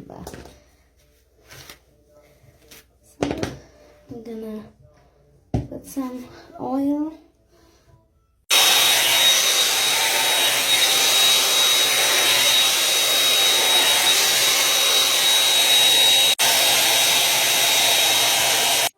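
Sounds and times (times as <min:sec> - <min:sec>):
hair dryer brush air rush: 0:08.5 - 0:18.9.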